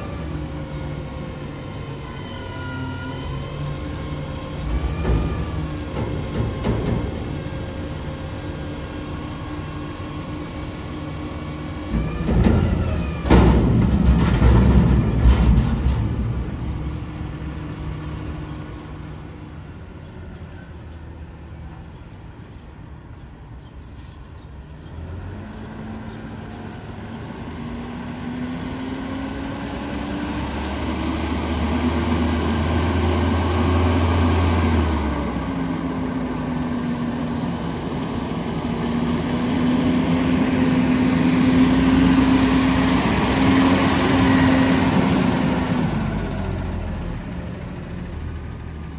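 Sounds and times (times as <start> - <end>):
garbage truck diesel engine: 0.0 - 48.9
metal clanks: 4.5 - 8.3, 11.9 - 19.4.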